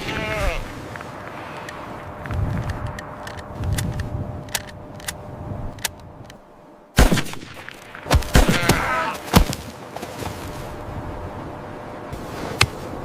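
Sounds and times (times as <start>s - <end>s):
loud sharp bangs: 7.0s - 9.5s.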